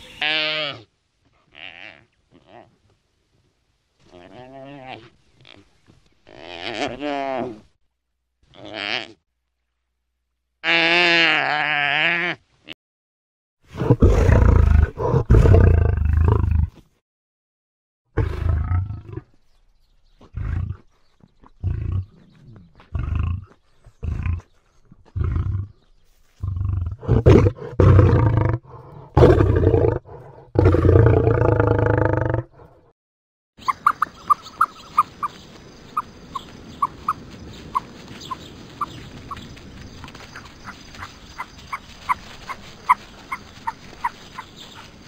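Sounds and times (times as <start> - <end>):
lion roaring: 13.7 - 16.8, 18.2 - 19.2, 26.4 - 32.8.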